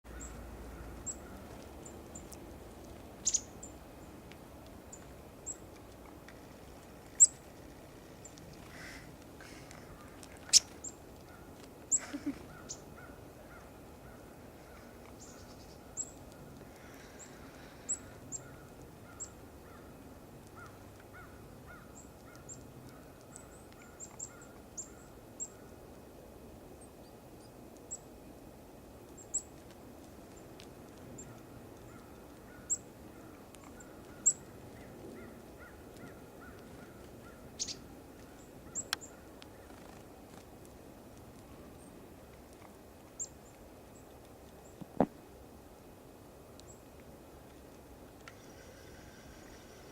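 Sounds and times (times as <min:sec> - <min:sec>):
songbirds chip calls: 0:00.1 - 0:07.5, 0:08.1 - 0:25.8, 0:30.3 - 0:40.4.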